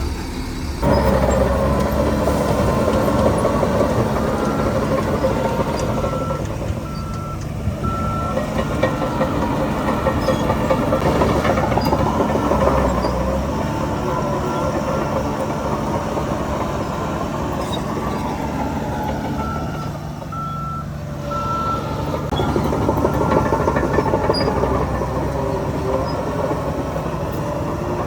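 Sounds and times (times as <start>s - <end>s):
diesel machinery engine rumble: 0.0s - 28.0s
back-up alarm beeping: 3.9s - 15.2s, 19.2s - 24.7s.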